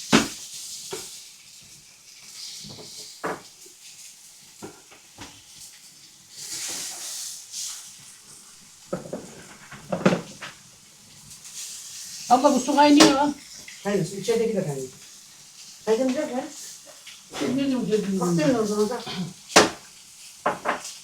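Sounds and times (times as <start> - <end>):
hissing sizzle: 0.0 - 21.0
pans and utensils clattering: 2.3 - 3.6, 8.8 - 10.7, 12.1 - 13.8, 16.9 - 21.0.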